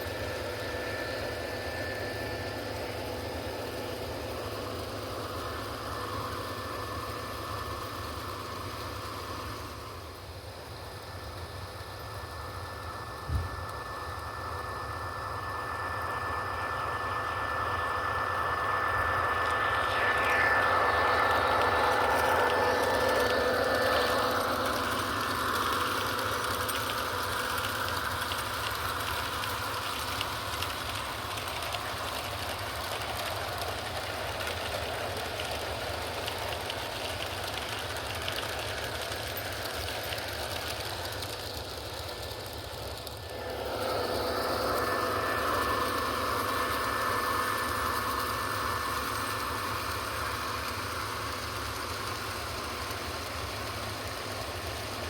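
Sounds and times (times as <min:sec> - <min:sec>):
electronic diesel engine sound: 0:00.0 - 0:55.0
model train cars rolling on track: 0:00.0 - 0:55.0.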